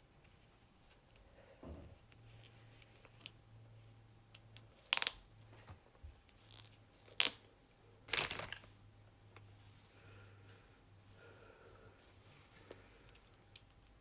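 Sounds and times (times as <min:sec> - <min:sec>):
plastic items being handled: 0:08.0 - 0:08.8.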